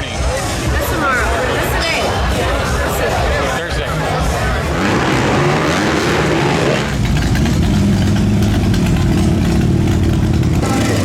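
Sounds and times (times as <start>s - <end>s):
motorcycle engine idling: 6.9s - 11.0s.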